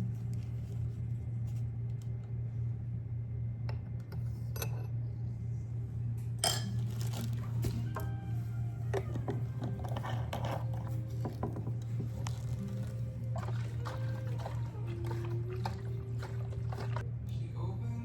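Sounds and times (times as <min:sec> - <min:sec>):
steady low hum: 0:00.0 - 0:18.0
glassware and utensils clinking: 0:06.4 - 0:07.4.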